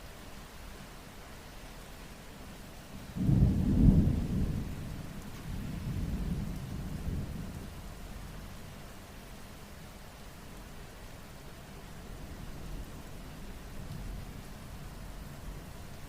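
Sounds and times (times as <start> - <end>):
steady rainfall: 0.0 - 16.0
thunder rumbling: 3.2 - 7.8.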